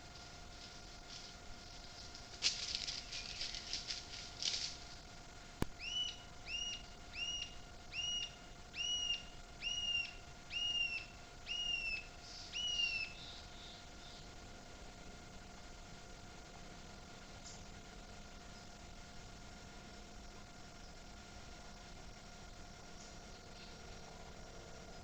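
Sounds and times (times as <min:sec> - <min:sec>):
rustling: 0:00.0 - 0:05.0
animal high chirps: 0:05.8 - 0:13.4.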